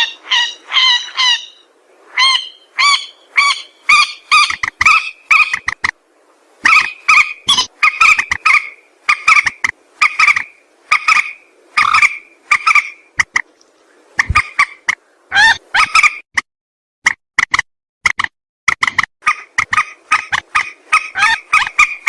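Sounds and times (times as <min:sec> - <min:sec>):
rail bird calling: 0:00.0 - 0:06.0, 0:06.6 - 0:13.4, 0:14.2 - 0:16.2, 0:19.2 - 0:22.0.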